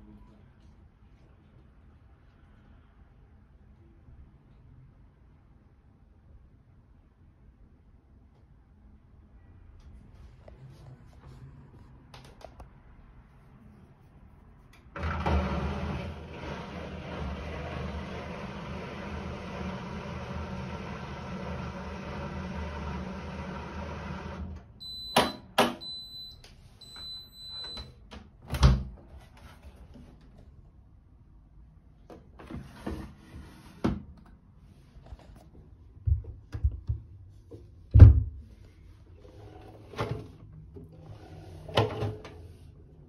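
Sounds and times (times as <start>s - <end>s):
washing machine running hum: 14.9s - 26.1s.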